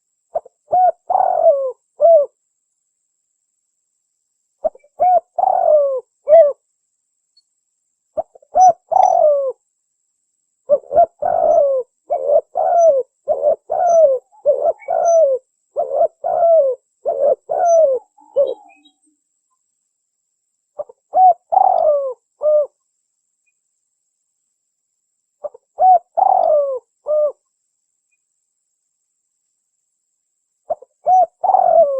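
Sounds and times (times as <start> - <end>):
dove cooing: 0.3 - 2.4, 4.6 - 6.6, 8.2 - 9.6, 10.7 - 19.0, 20.8 - 22.8, 25.4 - 27.4, 30.7 - 31.9.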